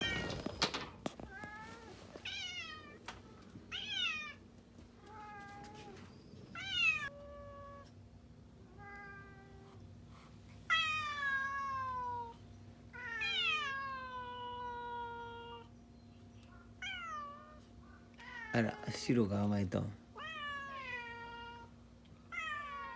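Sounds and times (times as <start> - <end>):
cat meowing: 0.0 - 4.4, 5.0 - 7.9, 8.7 - 9.8, 10.7 - 12.4, 13.0 - 15.7, 16.6 - 18.9, 20.2 - 21.7, 22.3 - 22.9.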